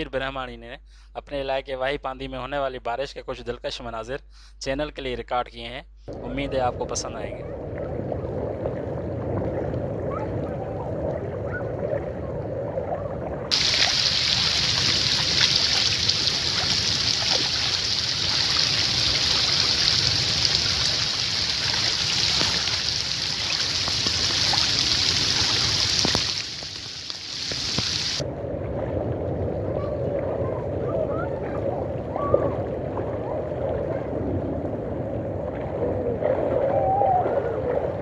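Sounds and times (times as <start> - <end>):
dull wash of sound: 6.1 - 37.2
heavy rain hiss: 13.5 - 28.2.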